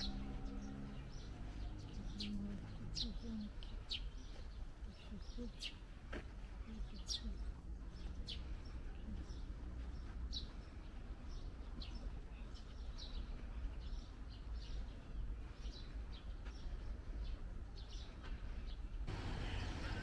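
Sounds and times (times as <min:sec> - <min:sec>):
songbirds chirping: 0:00.0 - 0:20.0
low steady rumble: 0:19.0 - 0:20.0.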